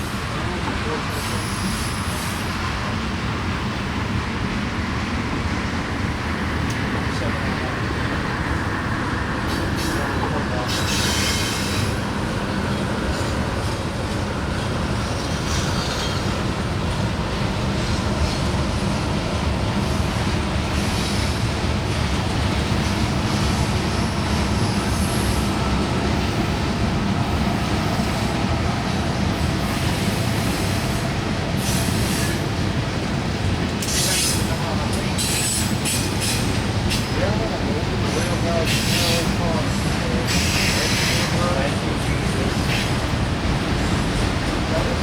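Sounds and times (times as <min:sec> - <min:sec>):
train wheels rumbling on rail: 0:00.0 - 0:45.0
high wheel squeals: 0:01.1 - 0:02.8, 0:09.5 - 0:12.1.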